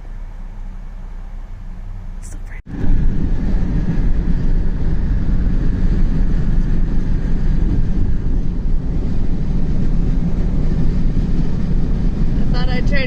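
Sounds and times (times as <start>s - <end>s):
moving car rumble: 0.0s - 13.0s.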